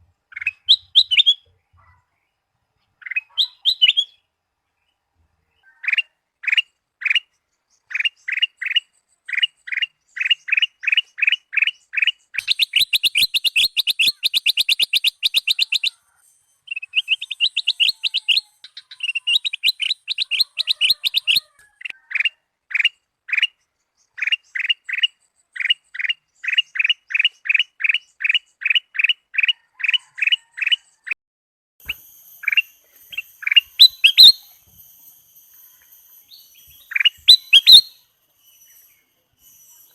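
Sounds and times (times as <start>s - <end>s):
bird fast trilling: 0.3s - 1.4s, 3.0s - 4.2s, 10.8s - 16.0s, 16.7s - 21.9s, 31.8s - 39.9s
bird whistled notes: 0.4s - 1.4s, 3.1s - 4.2s, 12.4s - 16.0s, 16.6s - 21.5s, 31.8s - 39.9s.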